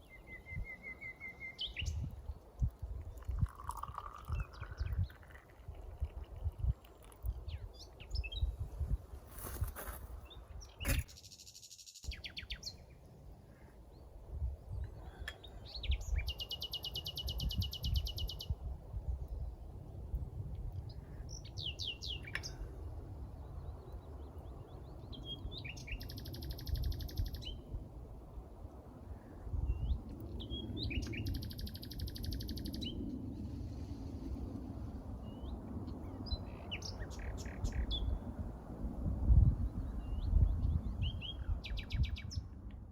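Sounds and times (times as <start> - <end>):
songbirds chirping: 0.0 - 33.8.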